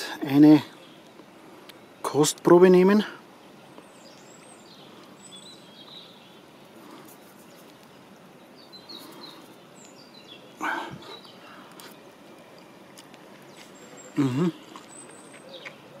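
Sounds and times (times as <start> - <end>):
outdoor background noise: 0.0 - 16.0
faint bird chirps: 3.6 - 12.5, 13.4 - 16.0.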